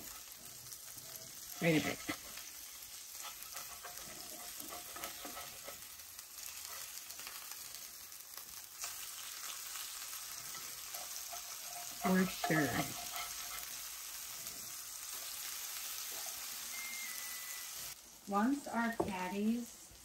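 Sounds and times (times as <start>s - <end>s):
metal spatula scraping a pan: 0.0s - 7.5s, 9.7s - 16.5s
patties sizzling in oil: 0.0s - 20.0s.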